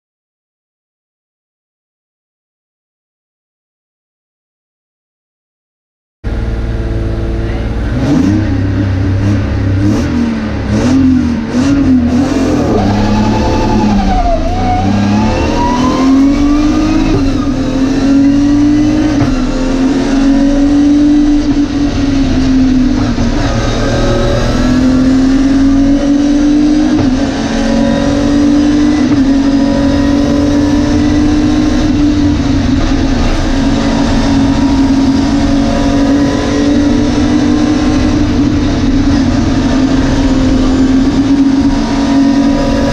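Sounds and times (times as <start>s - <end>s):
car engine revving: 6.3s - 42.9s.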